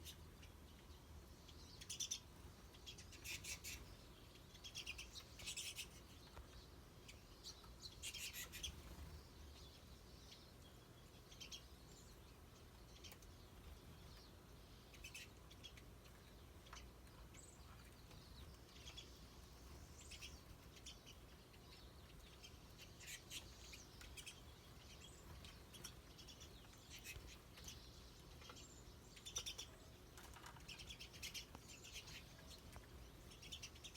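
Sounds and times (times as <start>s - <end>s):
faint low hum: 0.0s - 33.9s
small birds chirping: 0.0s - 33.9s.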